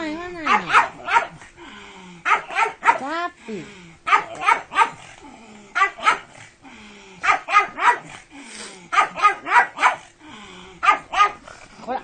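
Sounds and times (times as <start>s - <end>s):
dog barking excitedly: 0.4s - 1.4s, 2.2s - 3.2s, 4.0s - 5.1s, 5.8s - 6.4s, 7.2s - 8.2s, 8.9s - 10.1s, 10.8s - 11.4s.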